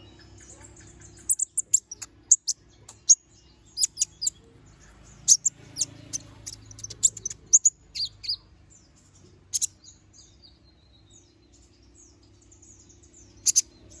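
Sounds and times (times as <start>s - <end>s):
bird chirping and twittering: 0.0s - 14.0s
faint low hum: 0.0s - 14.0s.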